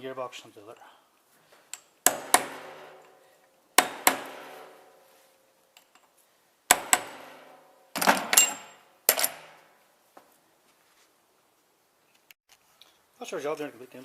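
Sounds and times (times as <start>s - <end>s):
metal-on-metal clanks: 6.7s - 9.6s.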